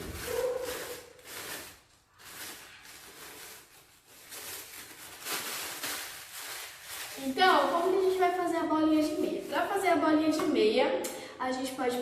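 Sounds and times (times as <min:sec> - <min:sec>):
crinkling rustle of crumpling: 0:00.0 - 0:09.9.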